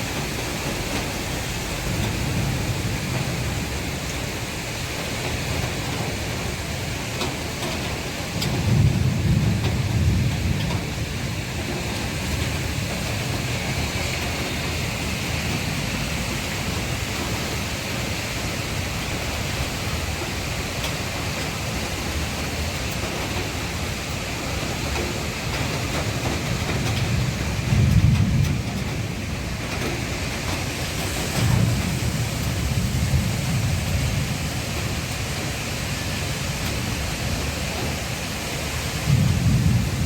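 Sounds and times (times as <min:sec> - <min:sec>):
heavy rain falling: 0:00.0 - 0:40.0
low rumble of thunder: 0:00.0 - 0:40.0.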